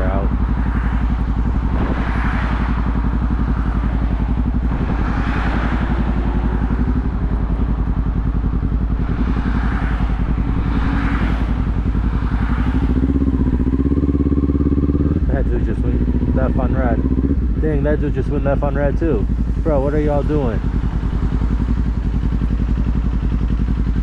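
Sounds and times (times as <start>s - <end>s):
motorcycle engine running: 0.0s - 24.0s
wind noise on microphone: 1.1s - 7.7s.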